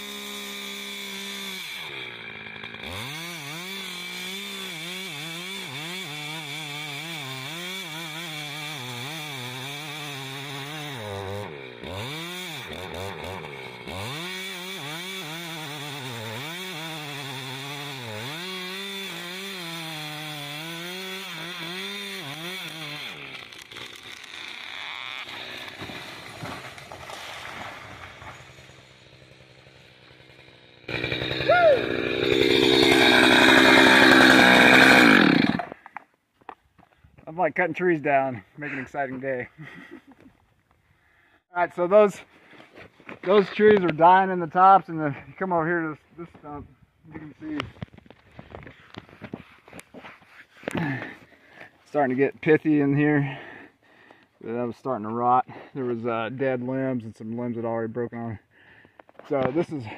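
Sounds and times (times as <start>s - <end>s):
close loud chainsaw cutting: 0.0s - 35.8s, 50.6s - 51.3s
chainsaw cutting wood: 0.0s - 36.1s, 46.2s - 54.2s.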